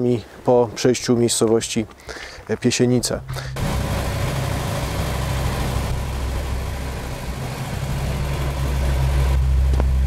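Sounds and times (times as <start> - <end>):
road noise hiss: 0.0 - 10.0
car engine running: 3.0 - 10.0.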